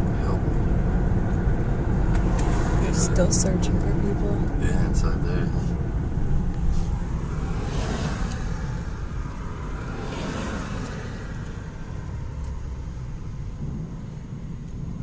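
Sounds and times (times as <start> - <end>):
car engine and road rumble: 0.0 - 15.0
brief rushing swells: 6.6 - 11.3.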